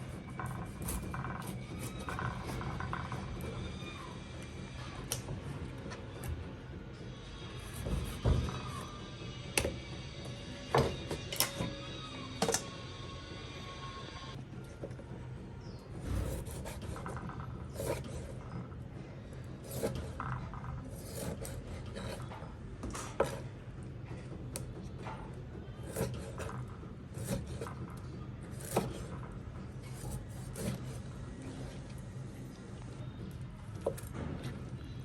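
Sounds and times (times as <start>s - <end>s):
scraping and rubbing on wood: 25.8s - 31.8s.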